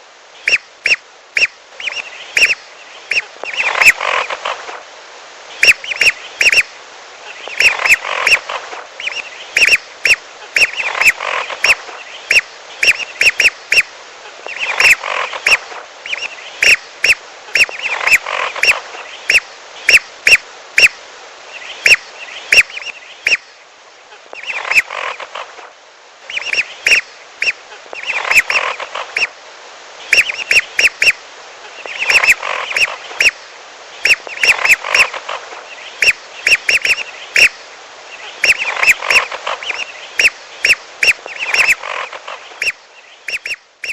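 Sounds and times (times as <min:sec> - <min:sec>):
short sharp whistled duck calls: 0:00.4 - 0:04.4, 0:26.3 - 0:29.3, 0:38.4 - 0:43.9.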